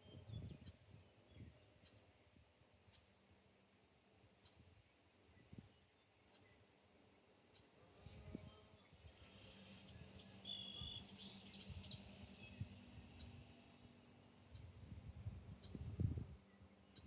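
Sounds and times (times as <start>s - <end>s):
small birds chirping: 7.5s - 17.0s.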